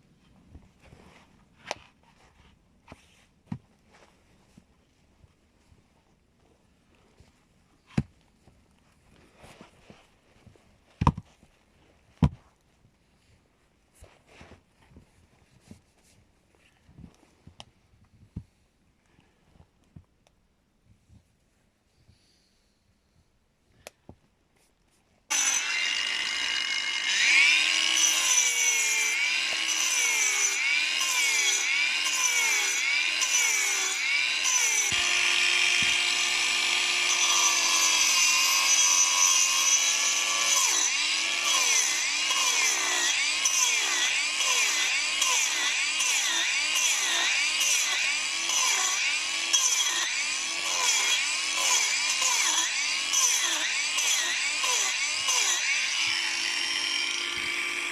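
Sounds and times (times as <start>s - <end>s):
hand saw cutting wood: 25.3s - 57.9s.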